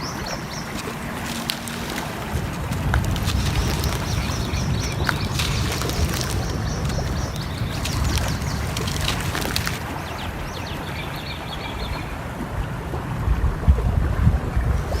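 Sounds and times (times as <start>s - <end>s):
flowing water rushing: 0.0s - 15.0s
crackling fire pops: 0.8s - 9.9s.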